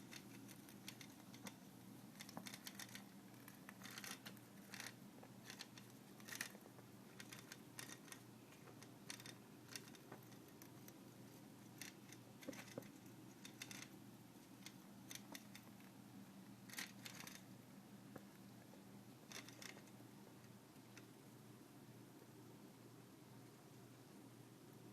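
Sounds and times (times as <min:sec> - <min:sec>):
faint irregular clicks: 0:00.0 - 0:21.2
low steady hum: 0:00.0 - 0:24.9
toy steam boat coil rattling: 0:03.8 - 0:06.5.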